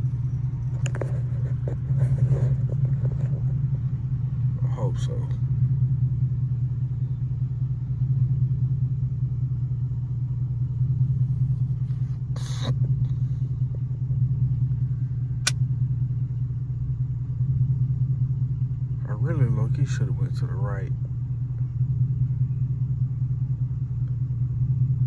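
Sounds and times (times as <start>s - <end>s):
car engine idling: 0.0s - 25.0s
sharp click: 15.4s - 15.6s.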